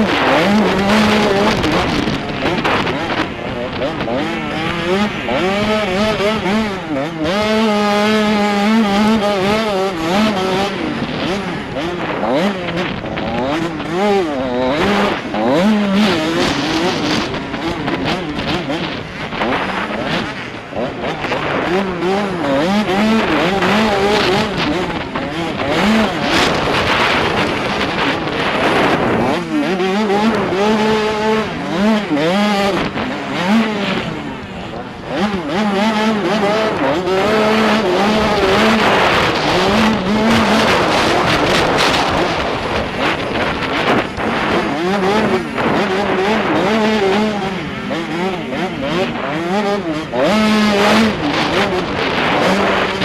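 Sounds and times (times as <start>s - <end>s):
motocross bike engine revving: 0.0s - 53.0s
wind on microphone: 0.0s - 53.0s.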